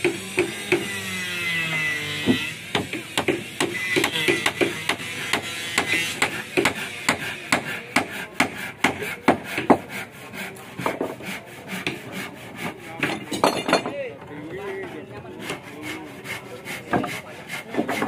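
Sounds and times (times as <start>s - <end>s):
hammer knocking on wood: 2.2s - 10.0s, 10.8s - 12.0s.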